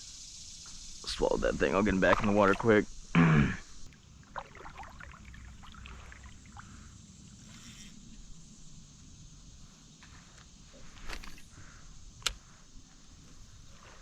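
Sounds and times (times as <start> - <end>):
light water sounds: 0.7 - 3.1, 3.8 - 8.1.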